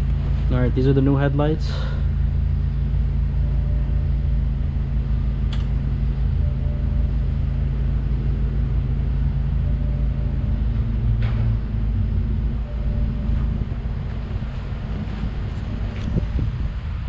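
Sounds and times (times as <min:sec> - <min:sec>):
car engine idling: 0:00.0 - 0:17.0
faint short tone: 0:03.3 - 0:08.5, 0:09.2 - 0:14.4.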